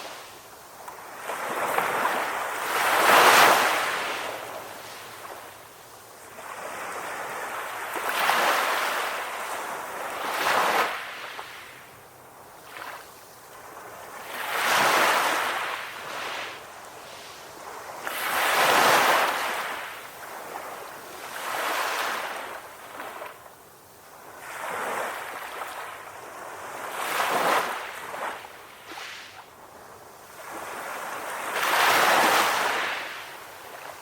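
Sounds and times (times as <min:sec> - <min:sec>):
sea waves breaking on shore: 0:00.0 - 0:05.6, 0:12.6 - 0:23.4, 0:24.2 - 0:29.5, 0:30.3 - 0:34.0.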